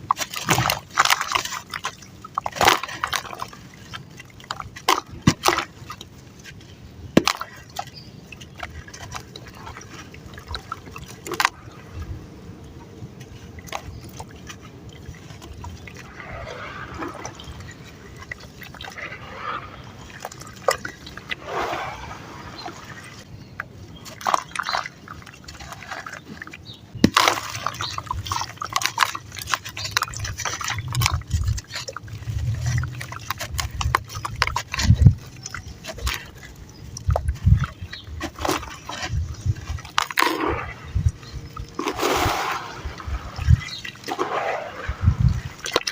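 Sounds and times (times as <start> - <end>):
sand and cement crumbling in water: 13.2 - 26.3, 26.9 - 45.9
sharp plops and splashes: 13.6 - 45.9.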